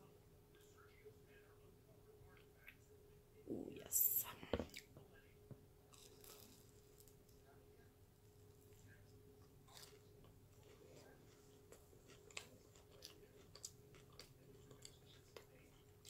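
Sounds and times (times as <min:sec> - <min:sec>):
faint chewing: 0:05.9 - 0:07.6, 0:08.2 - 0:16.0.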